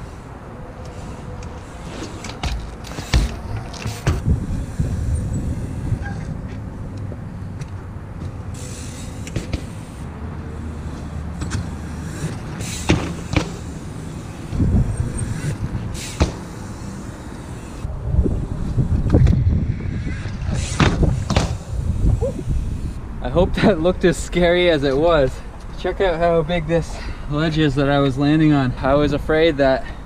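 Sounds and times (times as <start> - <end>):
road traffic rumble: 0.0 - 30.0
bike hopping and landing thuds: 1.5 - 6.6, 9.2 - 10.0, 10.8 - 17.6, 20.3 - 21.9.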